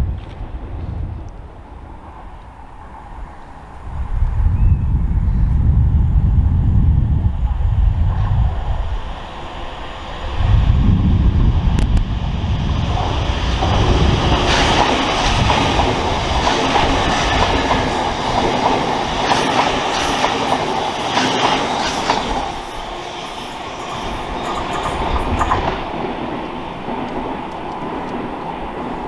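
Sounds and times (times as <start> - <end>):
wind rumble on microphone: 0.0 - 20.2, 23.7 - 29.0
train wheels clicking over rail joints: 12.8 - 29.0.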